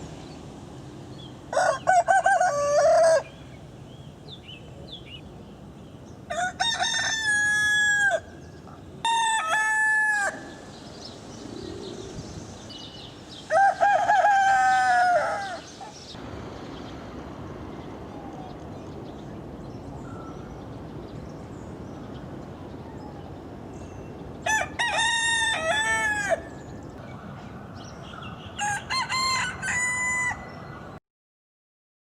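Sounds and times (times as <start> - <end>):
rooster crowing: 1.5 - 3.3, 6.3 - 8.3, 9.0 - 10.6, 13.5 - 15.8, 24.5 - 26.6, 28.6 - 30.8.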